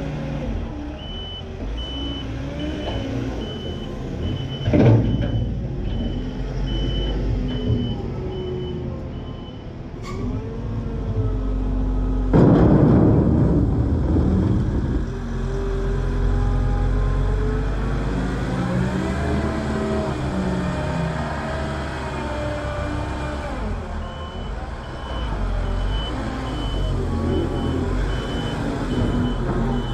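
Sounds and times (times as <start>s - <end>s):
diesel engines revving: 0.0s - 29.9s
reversing alarm beeping: 1.0s - 9.6s, 24.0s - 29.9s.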